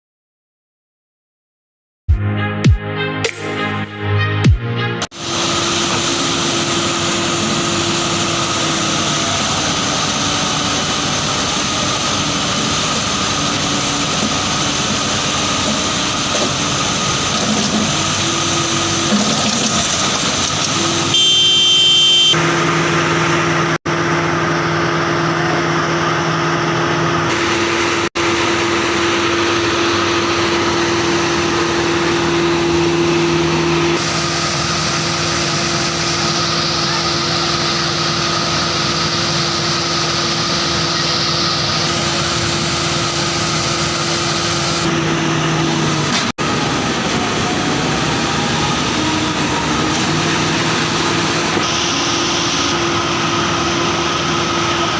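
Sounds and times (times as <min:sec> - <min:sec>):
diesel machinery engines humming: 0:05.2 - 0:54.9.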